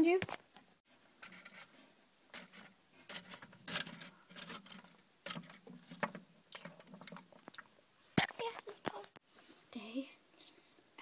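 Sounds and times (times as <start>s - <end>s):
plastic toy figurines handled: 1.2s - 1.7s, 2.3s - 7.3s.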